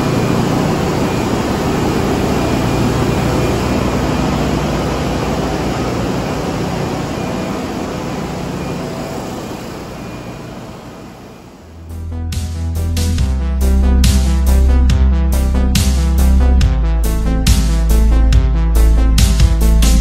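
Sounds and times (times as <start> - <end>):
low steady hum: 0.0 - 11.9
engine room machinery din: 0.0 - 20.0.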